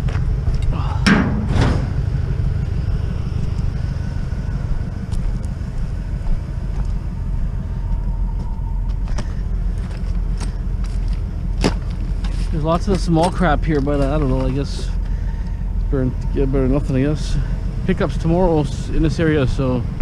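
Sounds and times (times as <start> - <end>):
vehicle engine rumbling: 0.0 - 20.0
scrap metal clanking: 1.0 - 2.0.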